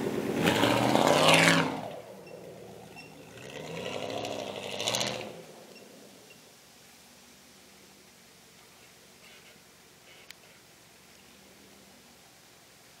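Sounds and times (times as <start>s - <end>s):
car engine revving: 0.0s - 6.4s.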